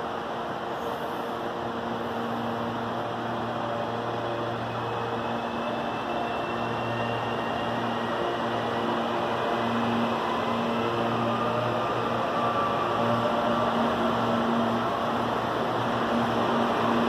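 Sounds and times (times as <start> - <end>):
electric train rumbling on tracks: 0.0 - 17.0
faint high whine: 0.0 - 17.0.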